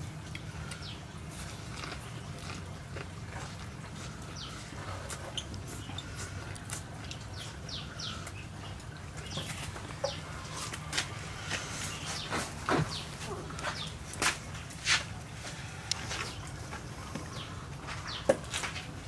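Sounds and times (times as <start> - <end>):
low steady hum: 0.0 - 19.0
chewing and lip-smacking: 0.1 - 14.4.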